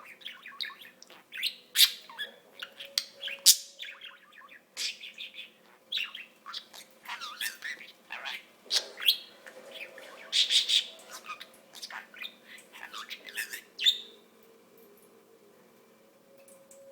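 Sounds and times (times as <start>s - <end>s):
budgerigar chirping: 0.0s - 9.3s, 10.3s - 14.1s.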